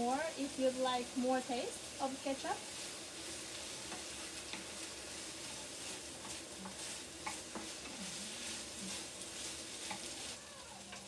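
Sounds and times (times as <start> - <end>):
chicken sizzling in a frying pan: 0.0 - 11.0
spatula scraping and tapping pan: 2.7 - 11.0.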